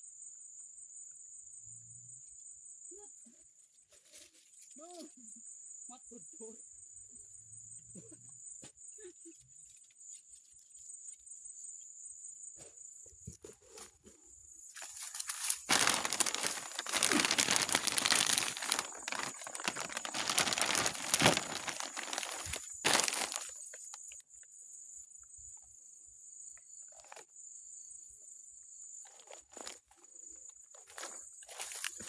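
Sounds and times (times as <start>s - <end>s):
crinkling and rustling: 14.8s - 24.2s, 29.1s - 30.1s, 30.7s - 32.0s.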